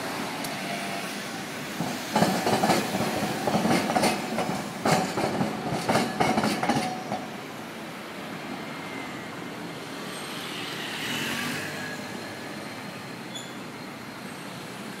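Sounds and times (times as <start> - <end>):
road traffic hiss: 0.0 - 15.0
vehicle passing by: 10.3 - 12.5.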